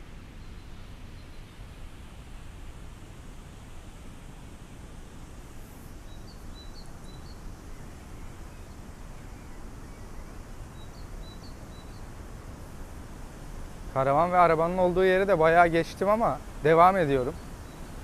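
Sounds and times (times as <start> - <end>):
small bird chirping: 6.1 - 8.7, 10.7 - 12.0, 17.1 - 18.0
steady rushing noise: 12.1 - 18.0.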